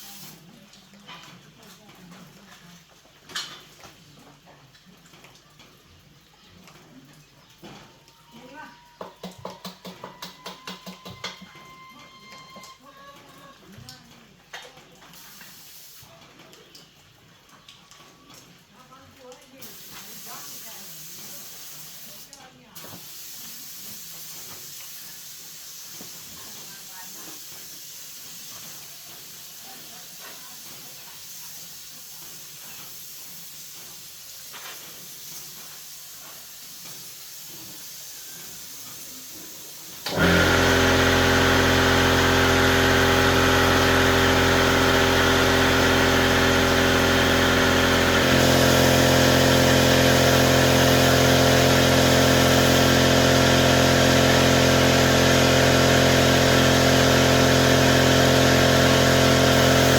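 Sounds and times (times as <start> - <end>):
faint hiss: 19.7 - 40.0
electric motor humming: 40.1 - 59.9.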